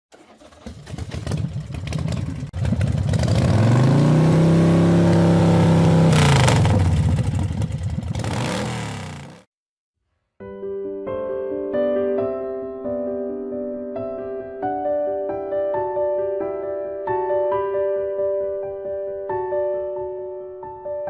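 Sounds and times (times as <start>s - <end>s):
motorcycle engine revving: 0.1s - 9.5s.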